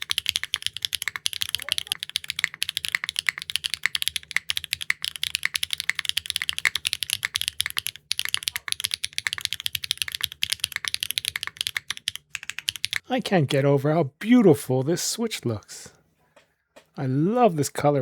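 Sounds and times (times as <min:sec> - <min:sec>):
fast mechanical keyboard typing: 0:00.0 - 0:13.0.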